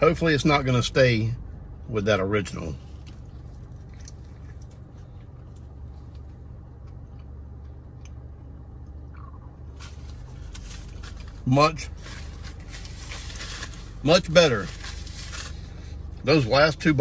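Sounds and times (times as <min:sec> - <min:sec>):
car cabin hum: 0:00.0 - 0:17.0
man chewing: 0:02.8 - 0:11.3.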